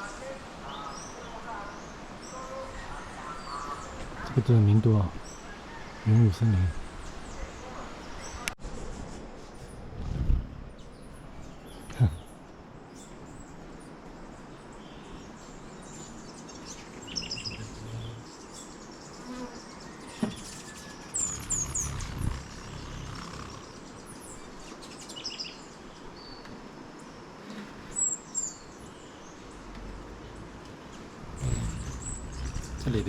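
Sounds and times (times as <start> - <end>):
hummingbird wings buzzing: 16.9 - 18.5, 20.2 - 24.4, 30.0 - 33.0.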